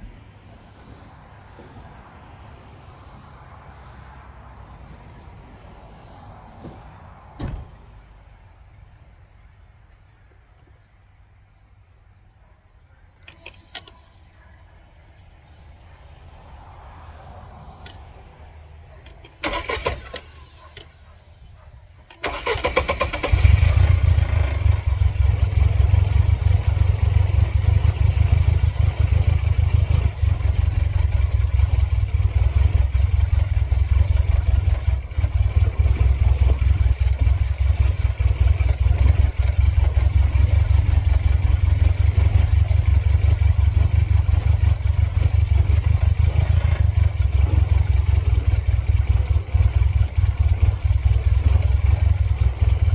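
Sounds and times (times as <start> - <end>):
car engine cranking and idling: 13.1 - 16.6, 17.5 - 21.2, 22.0 - 52.9.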